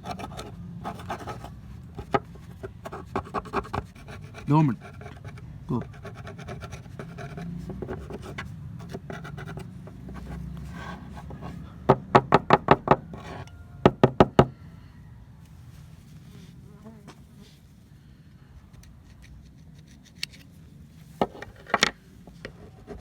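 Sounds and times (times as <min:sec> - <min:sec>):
sharp knocks: 0:11.9 - 0:13.1.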